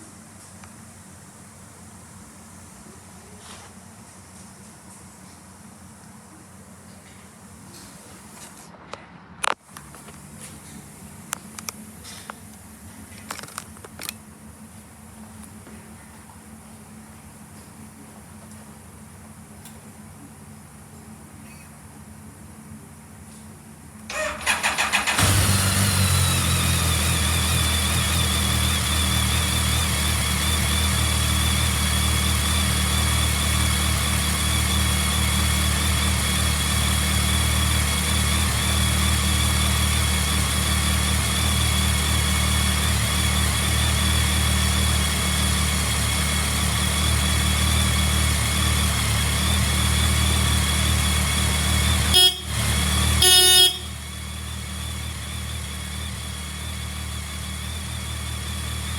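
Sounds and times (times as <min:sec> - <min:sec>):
motorcycle engine starting and idling: 0:09.4 - 0:20.9, 0:23.8 - 0:58.9
high engine whine: 0:24.1 - 0:58.9
motorcycle horn honk: 0:51.6 - 0:54.4.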